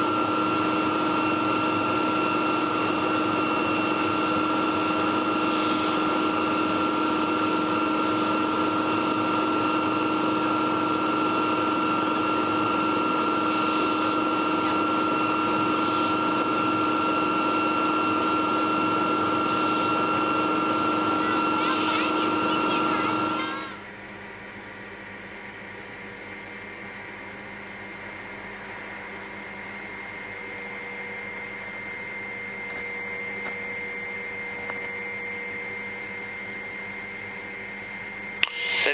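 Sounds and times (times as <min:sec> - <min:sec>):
constant whining tones: 0:00.0 - 0:23.9
helicopter engine and rotor drone: 0:00.0 - 0:38.9.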